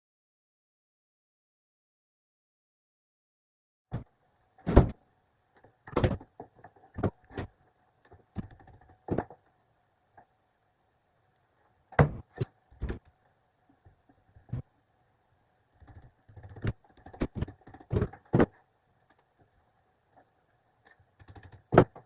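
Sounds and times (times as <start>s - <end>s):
hard objects knocking and clicking: 5.6s - 9.4s, 15.7s - 19.3s, 20.9s - 22.0s.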